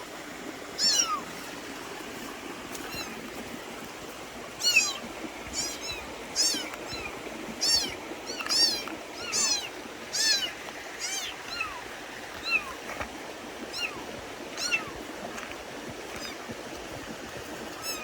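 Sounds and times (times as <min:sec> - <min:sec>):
kitten mewing: 0:00.8 - 0:01.2.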